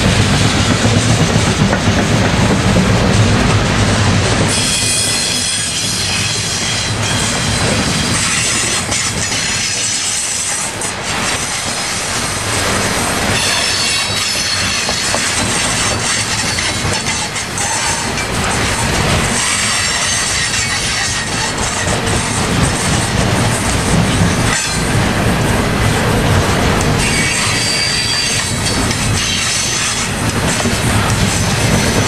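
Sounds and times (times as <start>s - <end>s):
train wheels clattering over rails: 0.0s - 32.0s
high-pitched wheel squeal: 13.4s - 22.4s, 27.0s - 30.1s.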